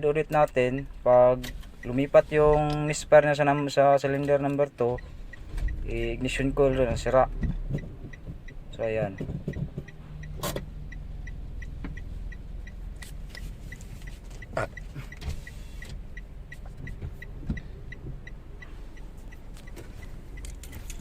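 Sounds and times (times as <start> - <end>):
engine clicks: 0.0 - 21.0
car engine running: 4.2 - 21.0.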